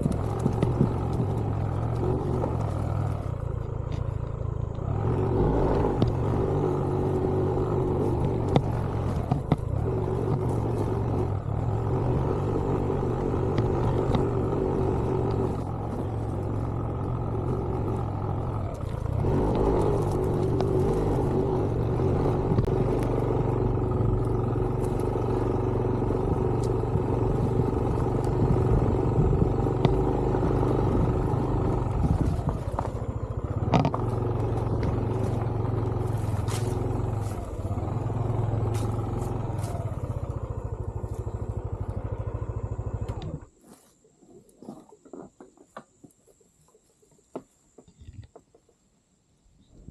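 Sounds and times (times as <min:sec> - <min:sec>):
motorcycle engine running: 0:00.0 - 0:44.1
faint ticks: 0:42.7 - 0:43.8.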